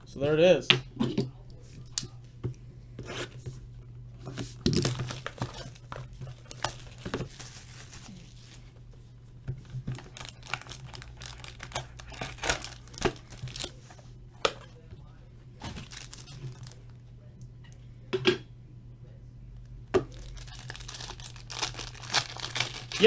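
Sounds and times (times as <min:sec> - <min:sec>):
plastic wrap crinkling and tearing: 0:04.5 - 0:08.8, 0:09.8 - 0:13.9, 0:15.6 - 0:16.9, 0:20.1 - 0:23.0.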